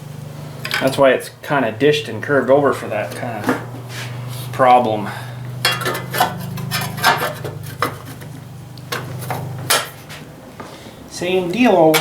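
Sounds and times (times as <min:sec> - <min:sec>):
steady low hum: 0:00.0 - 0:12.0
tools clicking and knocking: 0:05.6 - 0:08.3.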